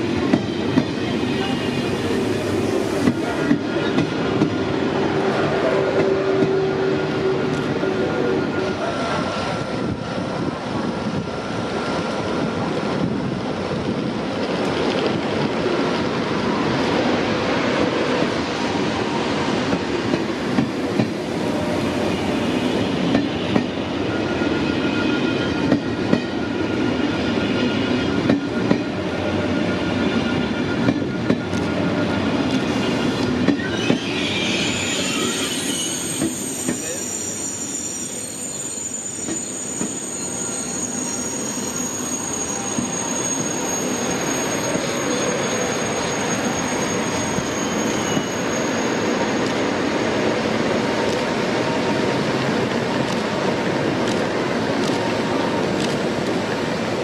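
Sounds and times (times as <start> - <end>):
train rolling slowly: 0.0 - 57.0
high-pitched wheel squeal: 32.7 - 50.3.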